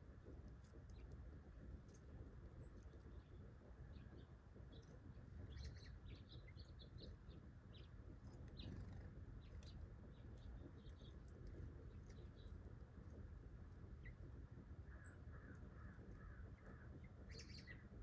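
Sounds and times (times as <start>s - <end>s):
small birds chirping: 2.5s - 12.8s, 14.9s - 18.0s.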